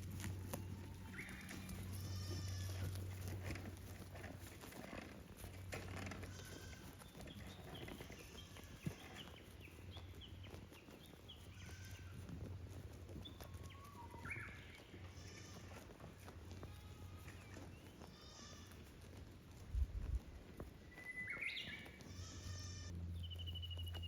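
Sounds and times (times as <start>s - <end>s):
goats bleating: 0.2s - 4.1s, 5.4s - 9.4s, 11.5s - 12.3s, 14.8s - 18.8s, 21.9s - 22.9s.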